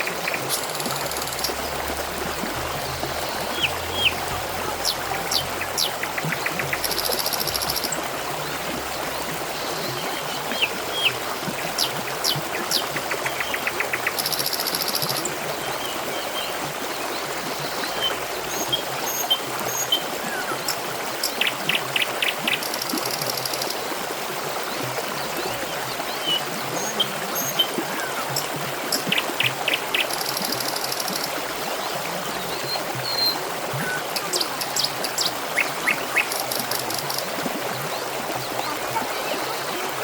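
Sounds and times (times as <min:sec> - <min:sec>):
water trickling: 0:00.0 - 0:40.0
birds chirping and trilling: 0:03.2 - 0:07.9.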